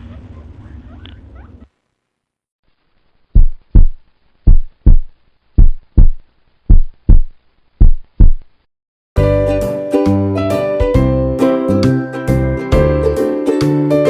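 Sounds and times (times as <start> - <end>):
heartbeat thumps: 3.3 - 8.5
music: 9.2 - 14.0.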